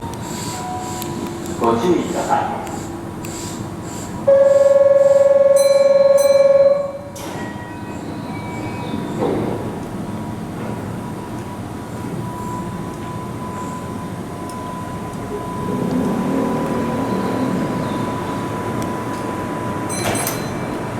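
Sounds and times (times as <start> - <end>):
electric train rumble: 0.0 - 20.9
train wheels squealing: 0.2 - 9.8
loud buzzer tone: 4.3 - 7.2.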